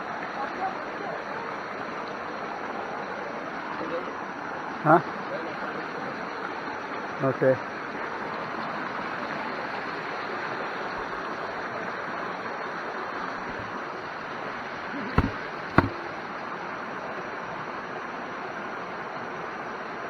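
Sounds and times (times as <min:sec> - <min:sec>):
sharp knocks: 0:13.5 - 0:13.7, 0:15.2 - 0:16.0
rushing stream water: 0:15.2 - 0:16.0.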